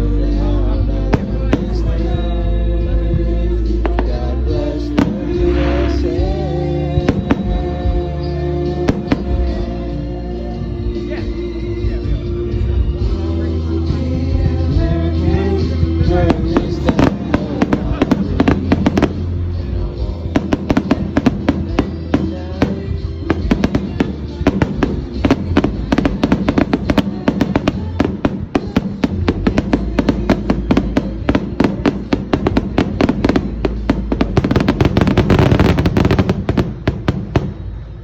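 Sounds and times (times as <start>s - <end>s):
music playing: 0.0s - 38.0s
fireworks bangs and crackles: 1.1s - 2.4s, 3.0s - 9.9s, 13.8s - 38.0s.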